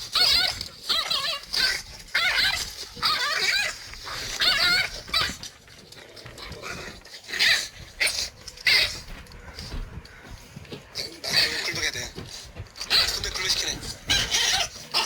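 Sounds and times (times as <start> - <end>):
dog whimpering and yipping: 0.1 - 5.5, 7.3 - 9.1, 14.1 - 15.0.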